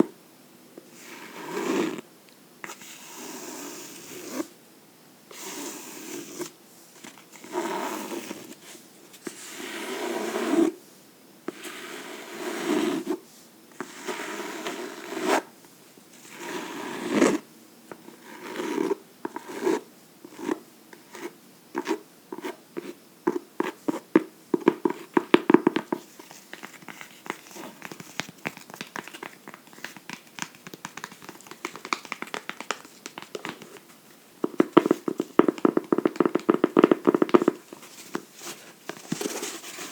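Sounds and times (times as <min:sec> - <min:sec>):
fingernails scratching a book: 0:07.4 - 0:08.5, 0:18.1 - 0:22.9, 0:34.4 - 0:39.9
fingernails tapping: 0:28.6 - 0:33.8, 0:34.4 - 0:37.6.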